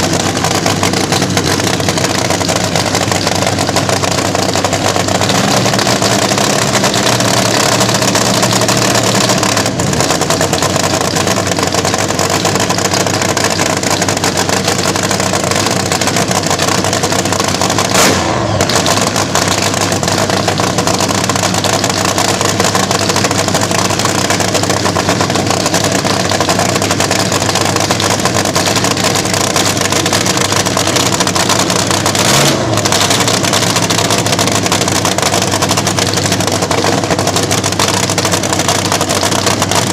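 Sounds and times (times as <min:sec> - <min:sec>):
dragster engine running: 0:00.0 - 0:39.9.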